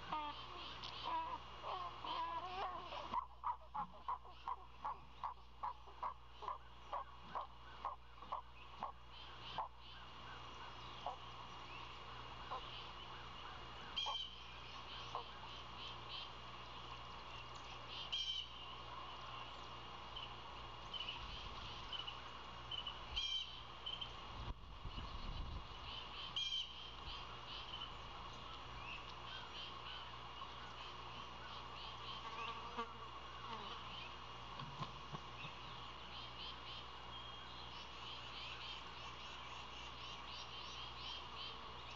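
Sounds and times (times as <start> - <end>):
faint bird chirps: 0.0 - 24.2
background bird chorus hum: 0.0 - 41.9.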